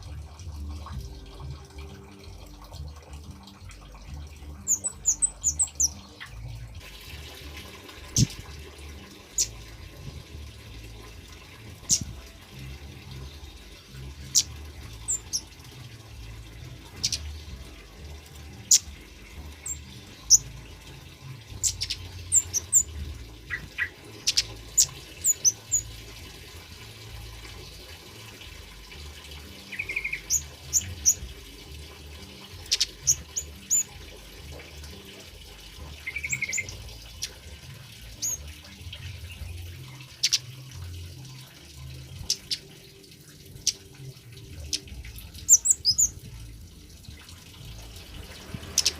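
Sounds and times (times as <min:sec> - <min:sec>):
bird chirping and trilling: 0:03.7 - 0:06.7, 0:08.1 - 0:08.4, 0:09.2 - 0:10.1, 0:11.6 - 0:17.8, 0:18.4 - 0:26.1, 0:29.4 - 0:31.6, 0:32.4 - 0:34.1, 0:35.8 - 0:42.9, 0:43.5 - 0:48.9.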